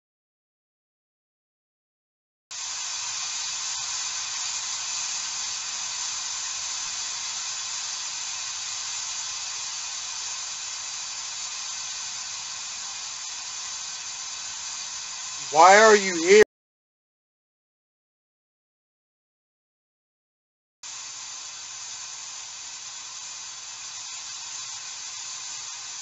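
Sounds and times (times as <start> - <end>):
steady electronic hiss: 2.8 - 16.4, 20.9 - 26.0.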